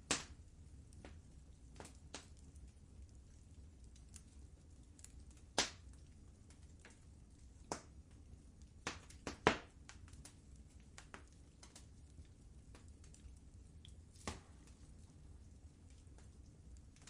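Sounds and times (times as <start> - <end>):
faint low rumble: 0.0 - 17.0
wood fire crackling: 0.0 - 17.0.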